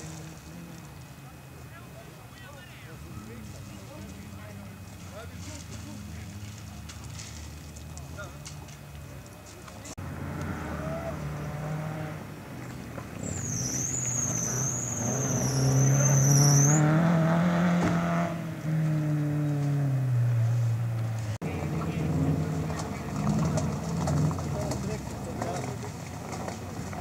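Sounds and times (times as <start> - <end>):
rally car engine revving: 9.9 - 27.0
high wavering whistle tone: 13.2 - 16.9.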